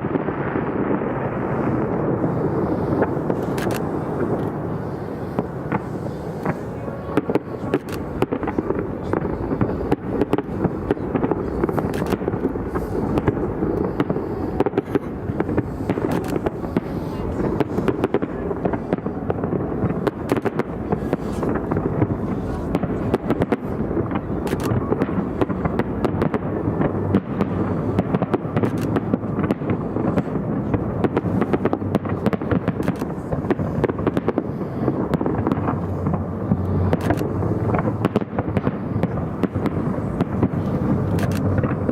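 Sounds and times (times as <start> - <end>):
continuous rumble: 0.0 - 41.9
fireworks cracking and banging: 0.0 - 41.9.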